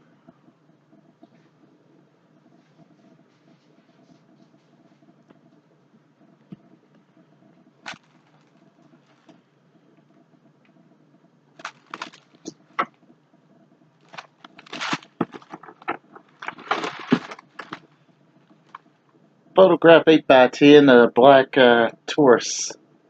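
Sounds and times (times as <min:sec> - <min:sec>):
packaging rustling and crinkling: 0:07.9 - 0:09.3, 0:11.6 - 0:12.5, 0:14.1 - 0:17.9.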